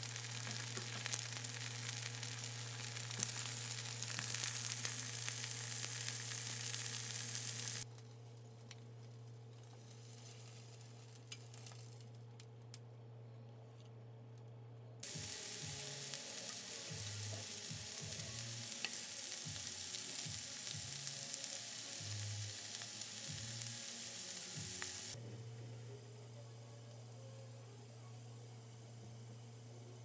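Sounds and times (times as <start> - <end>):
food sizzling in frying pan: 0.0 - 7.9, 15.0 - 25.2.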